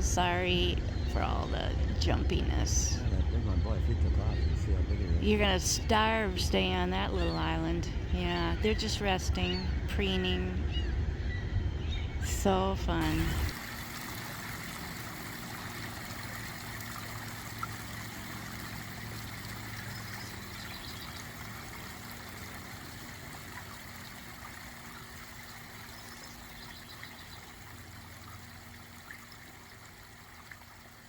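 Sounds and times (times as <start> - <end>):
running water rushing: 13.0 - 31.0.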